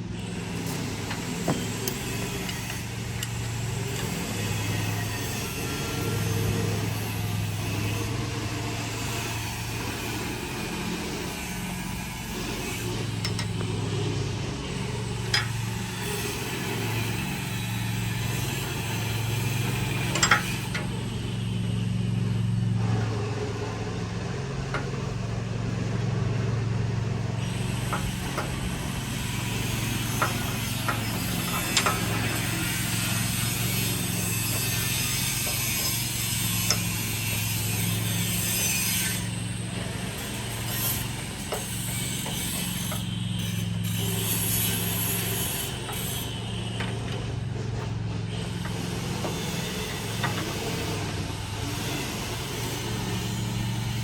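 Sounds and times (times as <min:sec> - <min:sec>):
engine idling: 0:00.0 - 0:38.4, 0:39.2 - 0:54.0
sharp clicks and knocks: 0:13.1 - 0:13.9, 0:15.2 - 0:15.8, 0:19.9 - 0:20.9, 0:30.1 - 0:32.4, 0:48.6 - 0:51.2.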